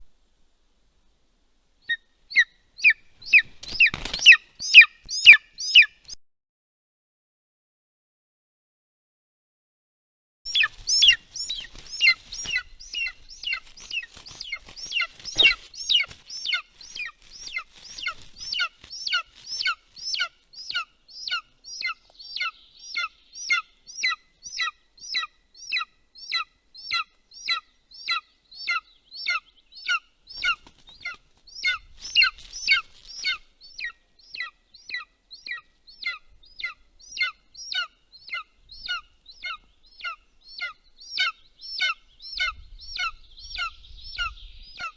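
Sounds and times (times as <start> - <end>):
eagle chick piping calls: 1.8 - 6.2, 10.5 - 44.9
rustling and bumping in nest: 10.6 - 19.2.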